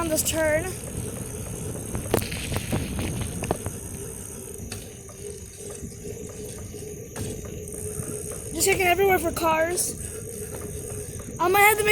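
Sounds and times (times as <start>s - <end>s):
wind on microphone: 0.0s - 8.8s
bicycle tyres rumbling: 0.0s - 11.9s.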